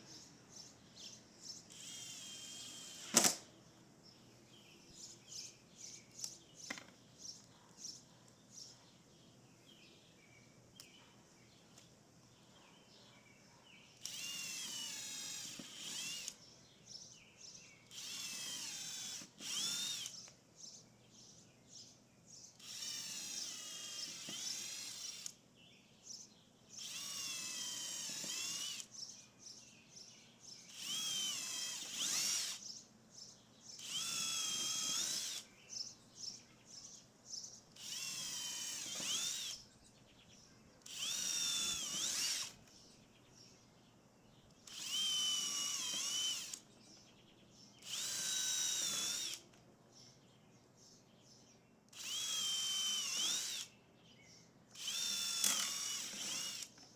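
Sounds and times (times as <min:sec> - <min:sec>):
power drill motor whine: 0:01.7 - 0:03.5, 0:14.0 - 0:16.4, 0:17.9 - 0:20.3, 0:22.6 - 0:25.4, 0:26.8 - 0:28.9, 0:30.7 - 0:32.7, 0:33.8 - 0:35.5, 0:37.8 - 0:39.6, 0:40.8 - 0:42.7, 0:44.6 - 0:46.6, 0:47.8 - 0:49.4, 0:51.9 - 0:53.7, 0:54.7 - 0:56.8.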